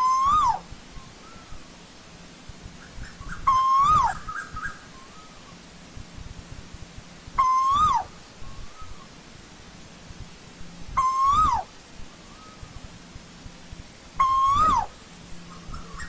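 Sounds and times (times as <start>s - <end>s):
koel whistled calls: 0.0s - 1.6s, 2.8s - 5.6s, 7.4s - 9.1s, 11.0s - 11.7s, 14.2s - 16.0s
faint soft bird notes: 0.0s - 16.0s.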